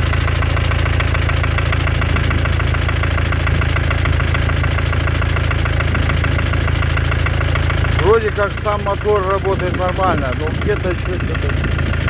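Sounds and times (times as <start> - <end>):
diesel engine idling: 0.0 - 12.0
engine knocking: 0.0 - 12.0.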